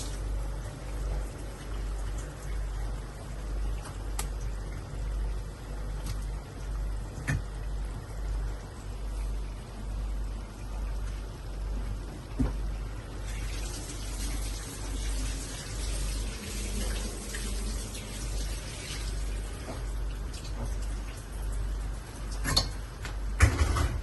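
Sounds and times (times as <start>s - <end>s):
running water rushing: 13.1s - 22.3s.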